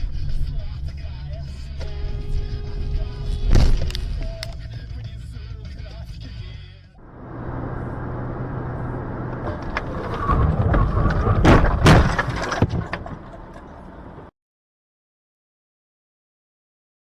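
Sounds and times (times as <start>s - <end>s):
car road noise: 1.6s - 4.8s, 7.0s - 14.3s
vehicle collision impacts: 3.4s - 4.3s, 7.0s - 14.3s
metal crunching: 7.2s - 14.3s.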